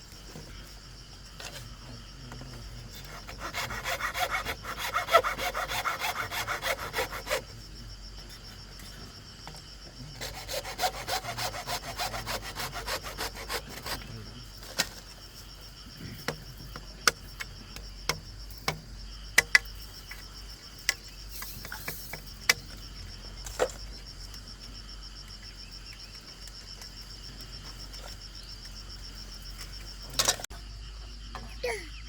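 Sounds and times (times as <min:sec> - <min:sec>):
crickets trilling: 0:00.0 - 0:32.0
sharp knocks and clicks: 0:16.1 - 0:22.8.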